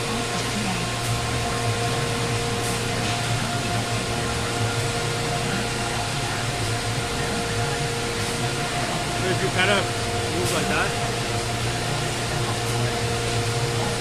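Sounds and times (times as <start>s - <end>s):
router machine droning: 0.0s - 14.0s.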